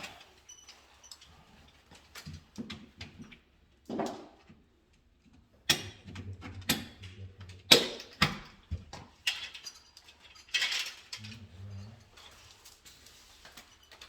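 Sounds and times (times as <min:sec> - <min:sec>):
tools clicking and knocking: 0:05.2 - 0:11.3.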